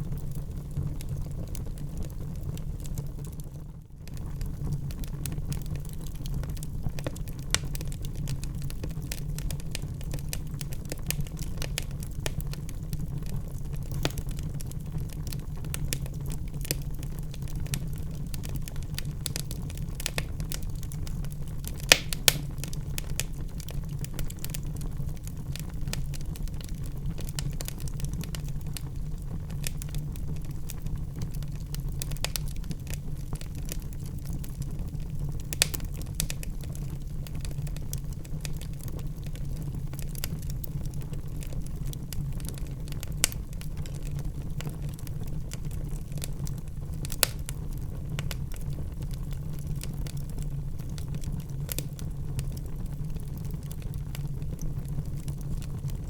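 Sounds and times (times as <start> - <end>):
fire low rumble: 0.0 - 56.0
wood fire crackling: 0.0 - 56.0
sharp fire pops: 13.8 - 14.5, 17.6 - 24.9, 35.4 - 37.5, 47.0 - 47.6.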